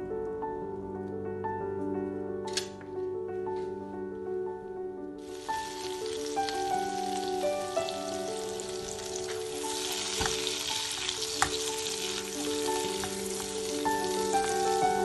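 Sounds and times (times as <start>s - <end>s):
soft background music: 0.0s - 15.0s
butter and garlic sizzling in pan: 5.2s - 15.0s.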